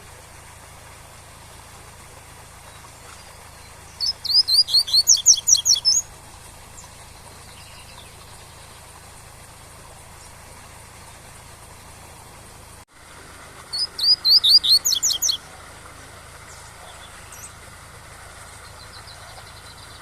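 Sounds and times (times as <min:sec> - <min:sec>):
bird singing whistled notes: 0:02.7 - 0:06.1, 0:13.7 - 0:15.5, 0:16.5 - 0:17.6.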